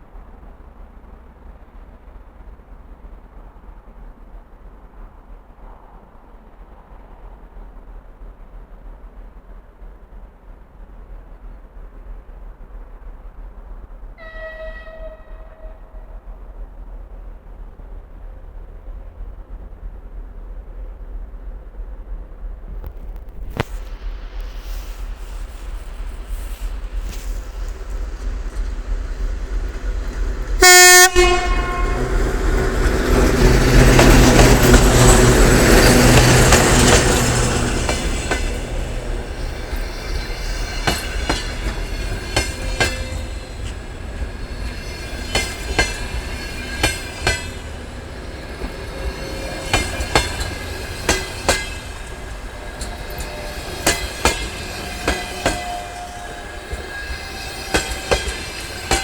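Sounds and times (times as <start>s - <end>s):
locomotive horn blast: 14.2s - 16.0s, 30.6s - 39.7s, 51.7s - 59.0s
train wheels clicking over rail joints: 22.6s - 59.0s
locomotive engine rumble: 23.0s - 59.0s.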